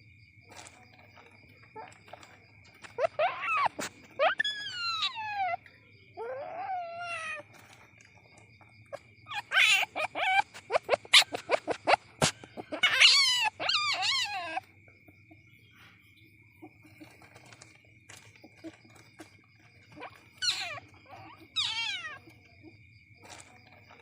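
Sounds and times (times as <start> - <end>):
baby animal squealing: 1.8 - 7.8, 8.9 - 14.7, 19.9 - 22.5.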